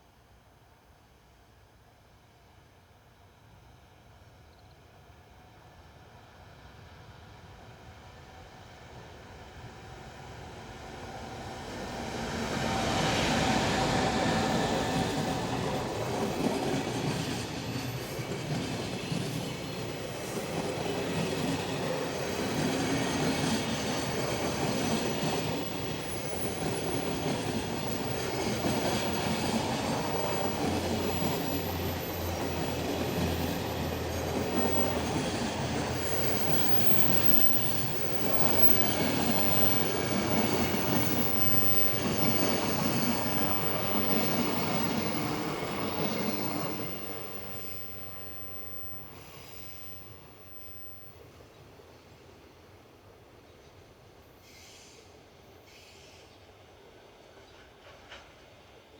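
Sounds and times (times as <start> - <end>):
freight train wheels clickety-clack: 9.0 - 51.1, 57.0 - 58.9.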